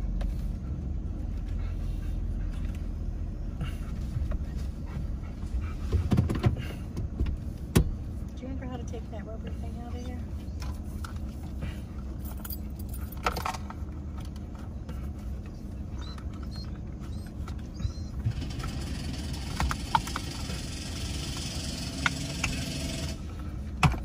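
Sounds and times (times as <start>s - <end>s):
engine idling hum: 0.0s - 24.0s
metallic clicks and jingles: 12.0s - 13.8s.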